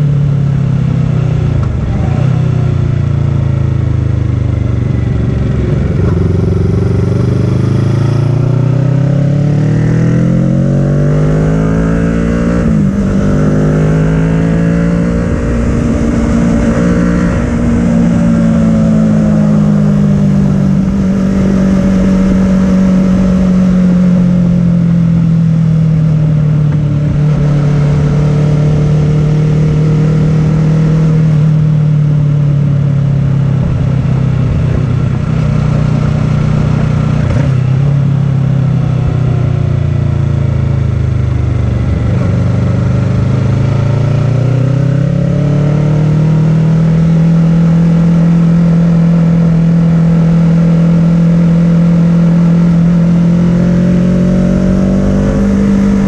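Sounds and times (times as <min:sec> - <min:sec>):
motorcycle engine accelerating: 0:00.0 - 0:56.0
wind rush: 0:14.7 - 0:24.7.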